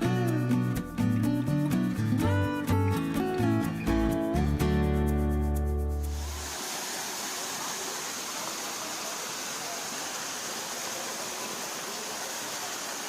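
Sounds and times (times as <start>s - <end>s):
steady rushing hiss: 6.0s - 13.0s.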